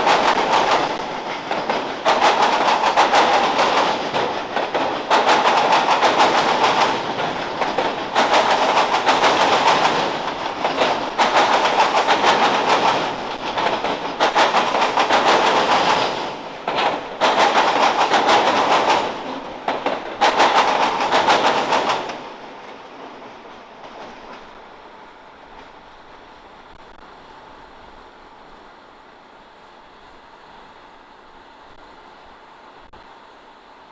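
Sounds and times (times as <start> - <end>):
train wheels clattering over joints: 0.0 - 24.7
faint steady noise: 22.1 - 33.9.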